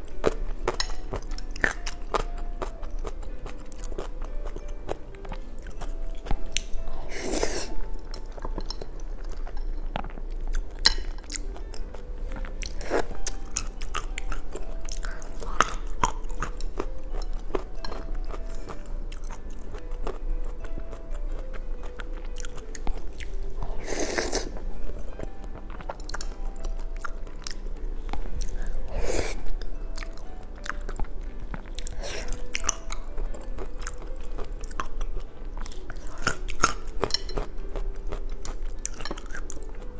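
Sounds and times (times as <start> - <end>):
person chewing: 0.0 - 39.9
soft background music: 0.0 - 39.9
crunching and slurping: 21.4 - 24.6.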